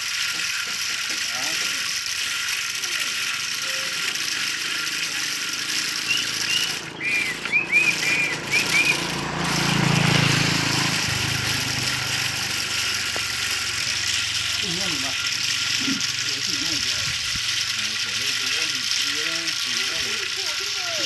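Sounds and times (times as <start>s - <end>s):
high chirping notes: 3.6s - 14.6s.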